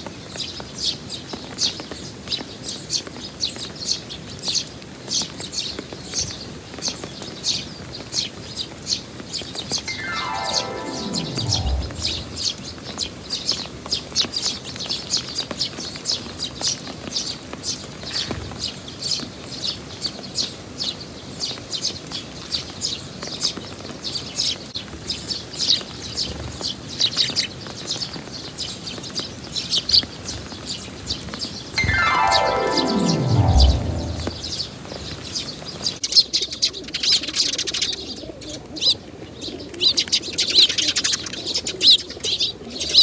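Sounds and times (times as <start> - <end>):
falling glide tone: 9.9 - 12.6, 31.8 - 34.7.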